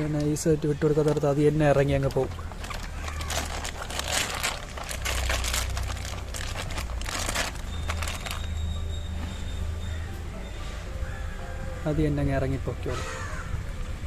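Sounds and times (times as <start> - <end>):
plastic bag crinkling: 1.0 - 8.7.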